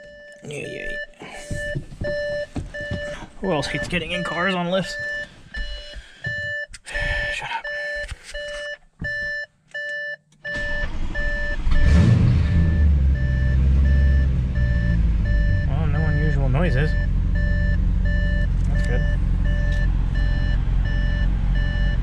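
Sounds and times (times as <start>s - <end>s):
car warning chime beeping: 0.0s - 22.0s
car engine cranking and idling: 8.0s - 22.0s.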